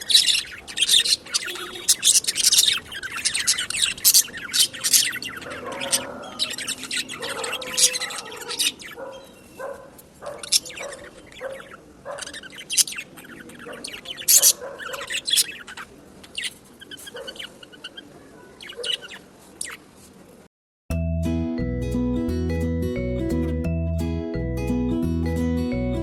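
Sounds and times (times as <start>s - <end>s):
budgies chirping and chattering: 0.0s - 19.9s.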